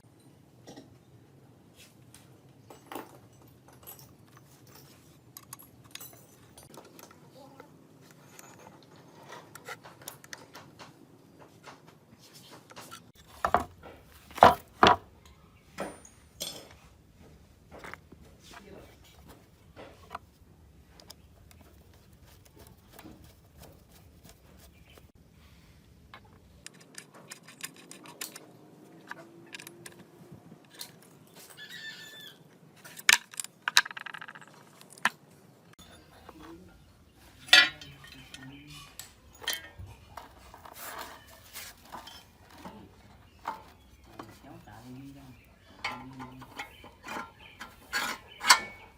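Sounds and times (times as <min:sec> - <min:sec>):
metal parts clicking and tapping: 0:02.7 - 0:07.2, 0:26.2 - 0:31.3, 0:37.4 - 0:44.4, 0:45.6 - 0:48.9.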